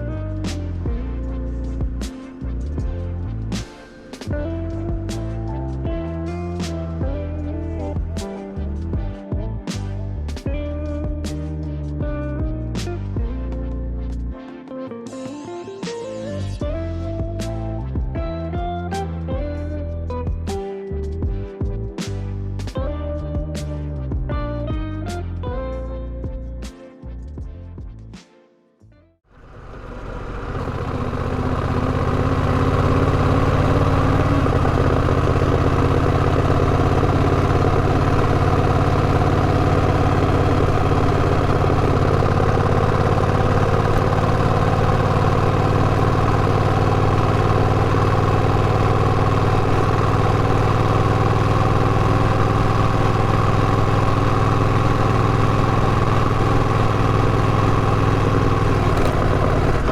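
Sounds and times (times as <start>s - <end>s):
engine humming steadily: 0.0s - 9.0s, 29.3s - 59.9s.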